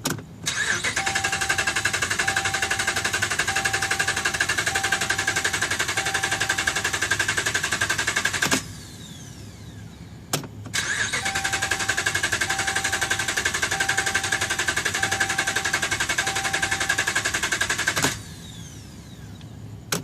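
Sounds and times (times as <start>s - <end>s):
starter cranking engine: 0.5s - 8.7s, 10.8s - 18.3s
short beeping tone: 2.2s - 2.9s, 3.5s - 6.5s, 16.2s - 16.9s.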